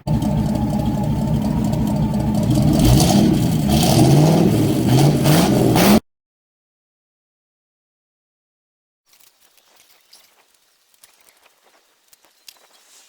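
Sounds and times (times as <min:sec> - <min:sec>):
engine revving: 0:00.0 - 0:06.0.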